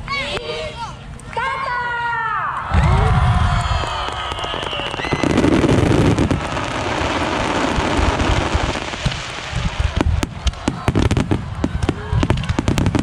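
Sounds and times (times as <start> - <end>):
fireworks crackling: 2.8 - 13.0
sharp firework bangs: 4.1 - 13.0.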